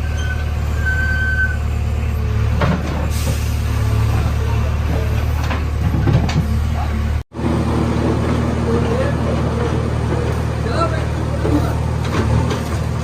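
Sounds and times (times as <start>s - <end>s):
diesel engine running under load: 0.0s - 13.0s
digger clanks: 2.4s - 7.1s, 7.8s - 13.0s.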